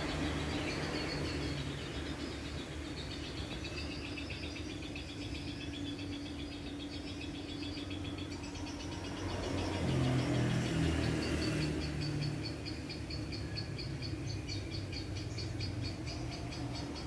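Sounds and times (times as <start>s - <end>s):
steady low hum: 0.0s - 10.5s
small birds chirping: 0.0s - 17.0s.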